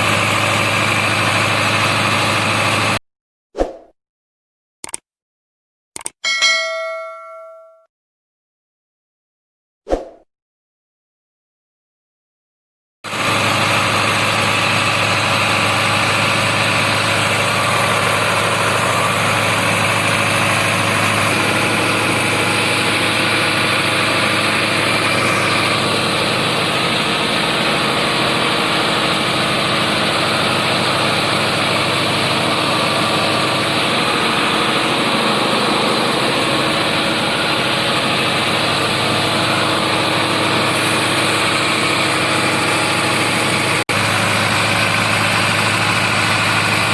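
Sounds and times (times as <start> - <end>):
tractor diesel engine running: 0.0 - 3.0, 13.1 - 46.9.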